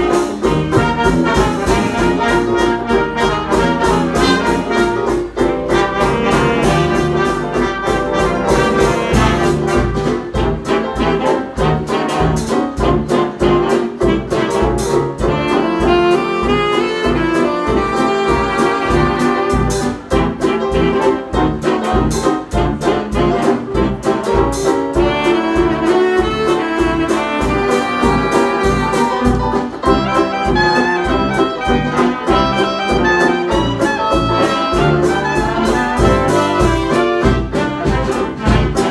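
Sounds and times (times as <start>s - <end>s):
steady bass beat: 0.0s - 10.7s, 21.4s - 38.9s
brass and saxophones: 0.0s - 38.9s.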